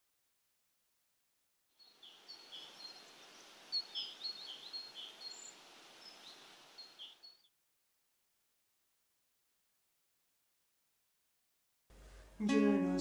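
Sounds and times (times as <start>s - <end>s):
outdoor hiss: 1.8s - 7.4s, 11.9s - 13.0s
small birds chirping: 1.8s - 7.5s.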